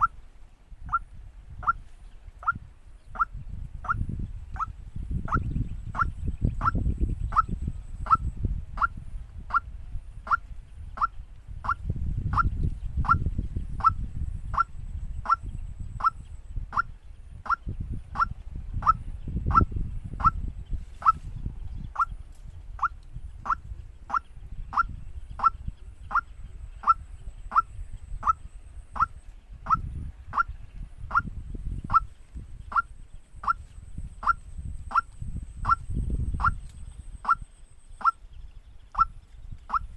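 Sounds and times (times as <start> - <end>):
waterhen call: 0.0 - 0.2, 0.9 - 1.8, 2.4 - 2.6, 13.8 - 17.6, 22.8 - 28.4, 34.2 - 35.8, 37.2 - 37.4, 38.0 - 38.2, 38.9 - 39.1, 39.7 - 39.9.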